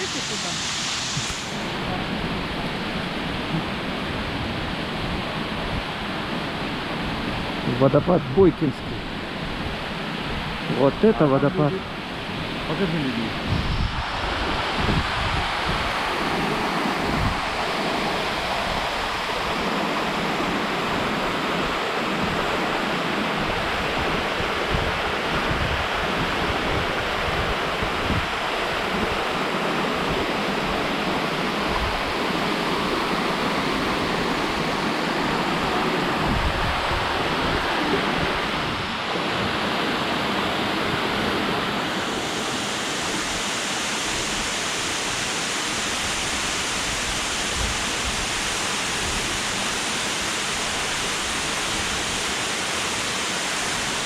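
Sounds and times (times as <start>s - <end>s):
waterfall roaring: 0.0s - 54.0s
wind rumble on microphone: 13.3s - 19.2s, 23.4s - 29.3s, 34.2s - 39.7s.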